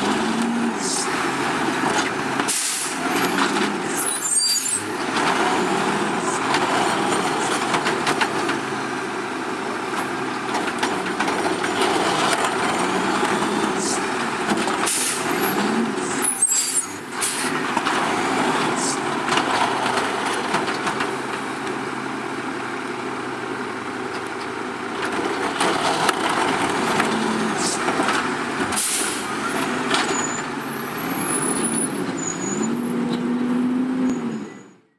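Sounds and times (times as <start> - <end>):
diesel truck engine revving: 0.0 - 34.9
air brake hisses: 2.5 - 3.0, 14.8 - 15.3, 28.8 - 29.3.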